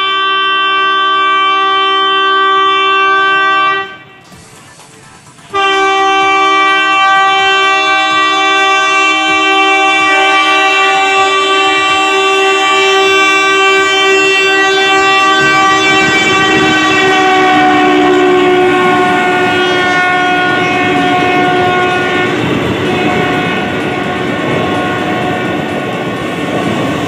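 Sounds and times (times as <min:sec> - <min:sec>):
locomotive horn blast: 0:00.0 - 0:04.3, 0:05.5 - 0:26.1
train coaches rumbling past: 0:00.0 - 0:27.0.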